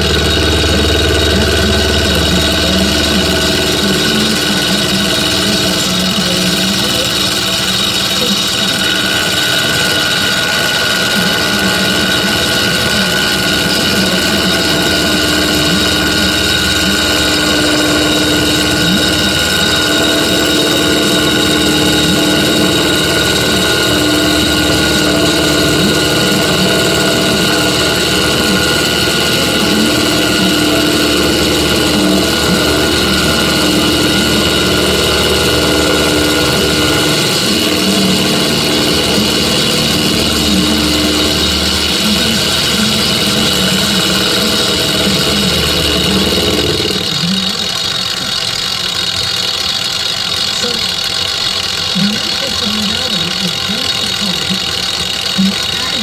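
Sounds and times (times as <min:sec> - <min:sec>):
metal lathe whining: 0:00.0 - 0:56.0.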